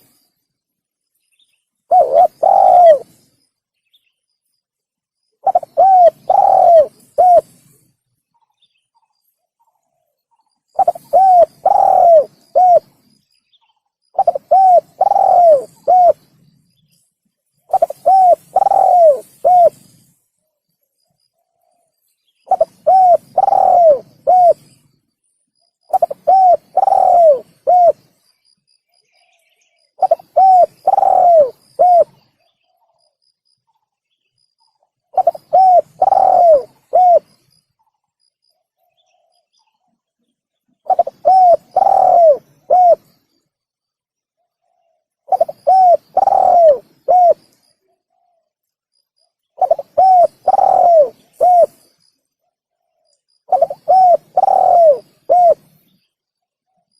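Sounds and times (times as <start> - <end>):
dove cooing: 1.9 - 3.2, 5.4 - 7.7, 10.7 - 13.1, 14.2 - 16.3, 17.7 - 20.0, 22.5 - 24.7, 25.9 - 28.1, 30.0 - 32.3, 35.1 - 37.3, 40.8 - 43.1, 44.6 - 48.4, 49.6 - 51.9, 53.5 - 55.8.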